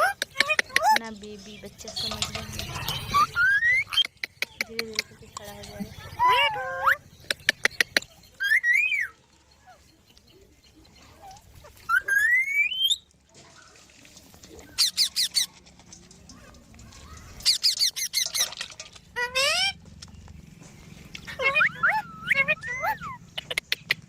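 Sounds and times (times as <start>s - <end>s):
parrots chattering: 0.0s - 13.0s, 14.6s - 15.6s, 17.0s - 19.8s, 21.1s - 24.0s
parrots screeching: 2.3s - 4.2s, 6.0s - 7.1s, 8.4s - 9.8s, 11.2s - 13.0s, 14.7s - 15.5s, 17.4s - 19.8s, 21.2s - 23.6s.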